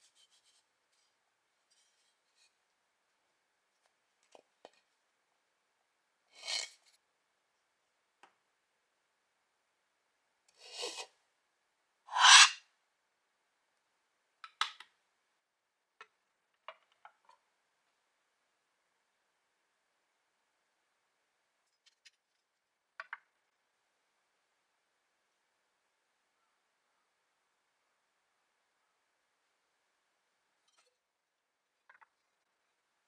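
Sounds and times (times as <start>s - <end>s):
faint scratch: 0.0s - 1.1s, 12.1s - 12.6s.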